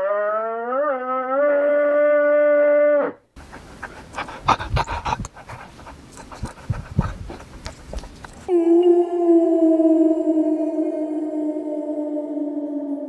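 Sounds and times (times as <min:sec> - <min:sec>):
farm animal long call: 0:00.0 - 0:03.2
snuffling and panting breaths: 0:03.4 - 0:08.5.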